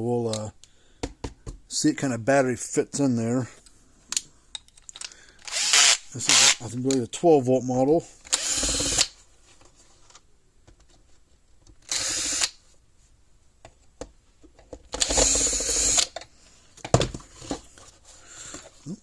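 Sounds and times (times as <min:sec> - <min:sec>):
cordless drill running: 0:05.5 - 0:06.6, 0:08.3 - 0:09.1, 0:11.8 - 0:12.5, 0:15.0 - 0:16.1.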